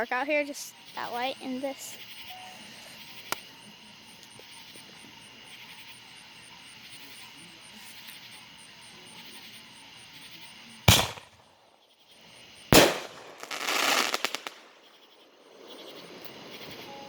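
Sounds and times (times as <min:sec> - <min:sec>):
fireworks bangs: 0:10.9 - 0:11.6, 0:12.7 - 0:17.0
fireworks crackling pops: 0:10.9 - 0:11.6, 0:12.7 - 0:17.0.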